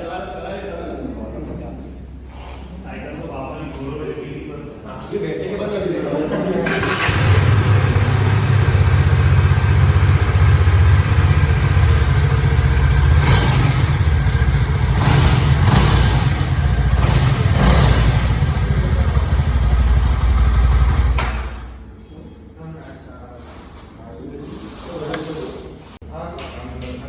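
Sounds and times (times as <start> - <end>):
motorcycle engine running: 6.8 - 21.8.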